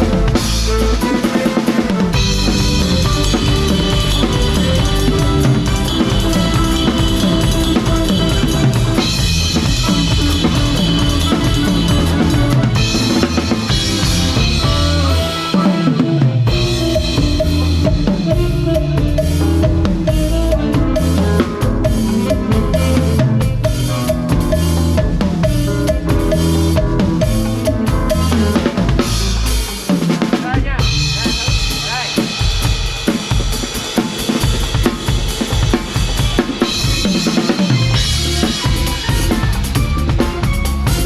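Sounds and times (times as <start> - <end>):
bass line: 0.0 - 29.9, 30.6 - 32.1, 36.6 - 41.0
sustained melody instruments: 0.2 - 29.5.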